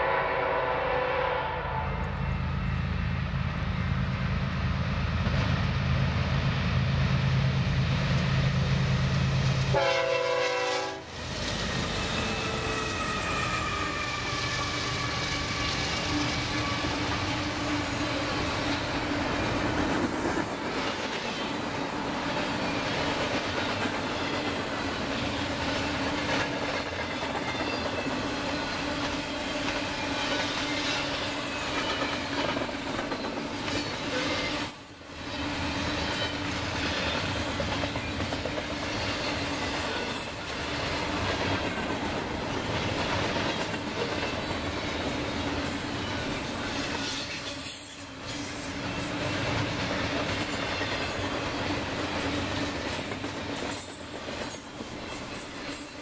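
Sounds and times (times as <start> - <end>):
train horn: 0.0 - 2.4, 9.7 - 11.2, 12.1 - 17.4
wheels clickety-clack on rails: 11.3 - 34.9, 35.5 - 56.0.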